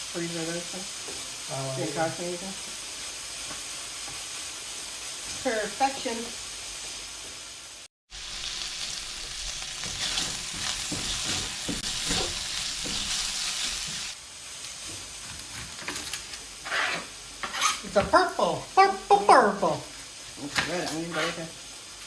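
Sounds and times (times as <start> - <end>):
meat sizzling in a frying pan: 0.0 - 22.0
utensil scraping a pan: 9.8 - 14.0, 15.5 - 18.0, 20.6 - 21.5.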